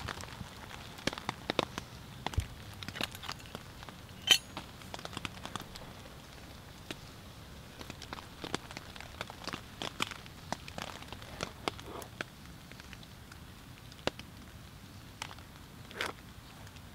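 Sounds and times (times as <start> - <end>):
rain pattering on tent: 0.0 - 16.9
wood stove fire crackling: 0.0 - 16.9
metal mug clinking on board: 4.2 - 4.6.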